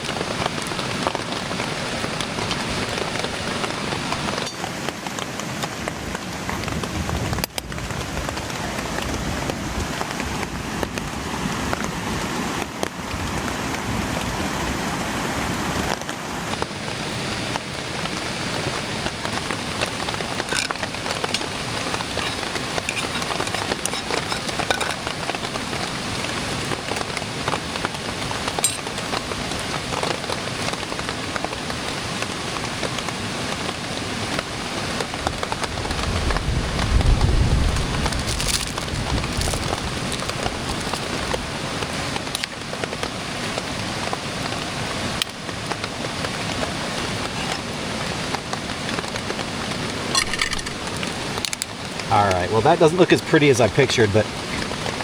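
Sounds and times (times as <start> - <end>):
light rain falling: 0.0 - 55.0.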